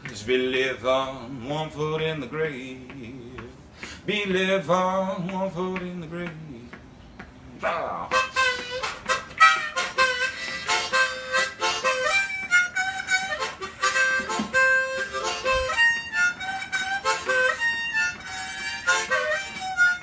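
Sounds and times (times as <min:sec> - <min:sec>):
person singing blues: 0:00.0 - 0:06.9, 0:07.5 - 0:20.0
harmonica solo: 0:08.1 - 0:20.0.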